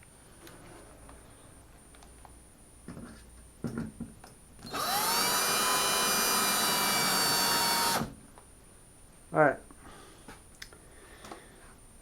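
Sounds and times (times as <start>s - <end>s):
power drill whining: 4.6s - 8.2s.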